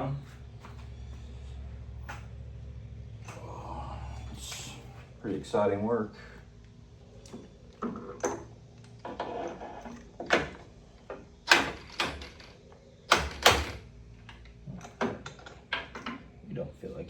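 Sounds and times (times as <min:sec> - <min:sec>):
tools knocking and clunking: 0:14.7 - 0:16.3.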